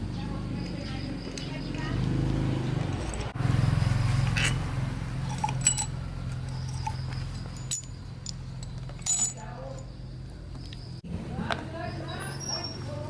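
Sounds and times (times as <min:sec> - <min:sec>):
metal tools clinking: 0:02.8 - 0:03.4, 0:04.1 - 0:09.9.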